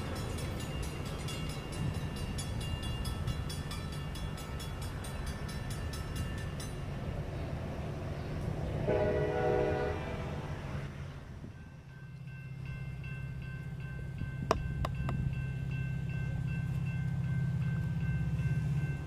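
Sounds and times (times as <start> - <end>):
train rumble and clicking: 0.0 - 19.0
train horn blast: 8.8 - 10.5.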